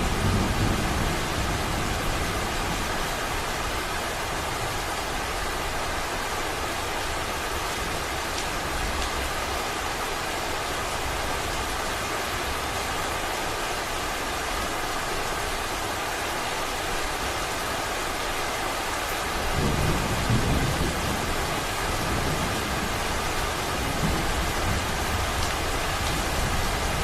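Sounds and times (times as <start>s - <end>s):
low rumble of thunder: 0.0s - 3.2s, 19.4s - 27.0s
heavy rain falling: 0.0s - 27.0s.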